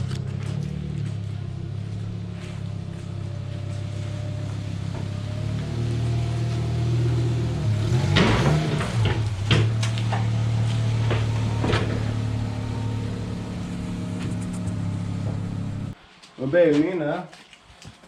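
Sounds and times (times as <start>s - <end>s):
car engine idling: 0.0s - 16.0s
knocks and clunks: 7.9s - 16.0s.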